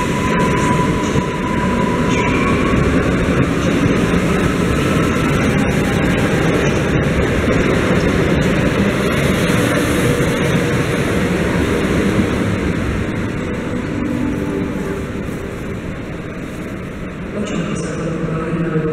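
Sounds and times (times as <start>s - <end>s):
train wheels rumbling on rails: 0.0s - 18.9s.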